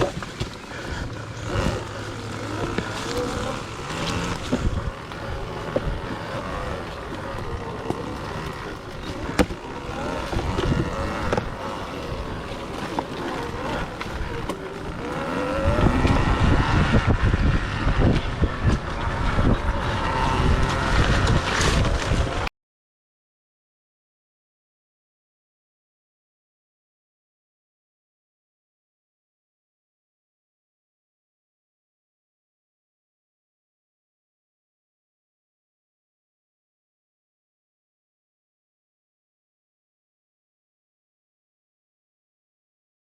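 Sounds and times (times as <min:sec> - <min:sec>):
wind buffeting microphone: 0:00.0 - 0:22.5.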